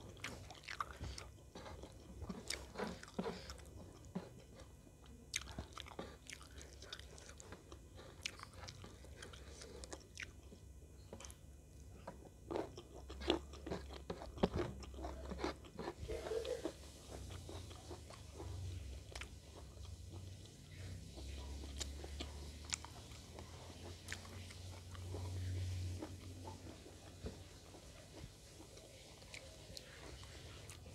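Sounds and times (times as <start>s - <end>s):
chewing and biting: 0.0s - 30.9s.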